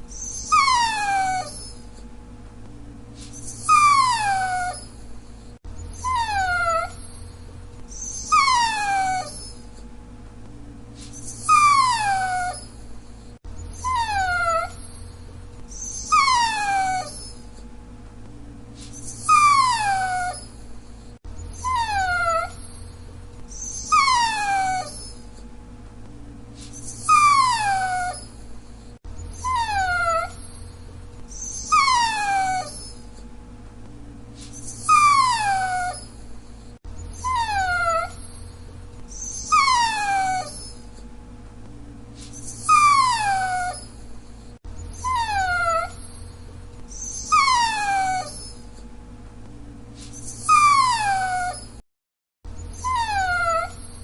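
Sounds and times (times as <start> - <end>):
dog whining: 0.0 - 2.1, 3.2 - 9.9, 11.0 - 17.7, 18.8 - 25.5, 26.6 - 33.3, 34.4 - 41.1, 42.2 - 48.9, 50.0 - 51.8, 52.5 - 54.0.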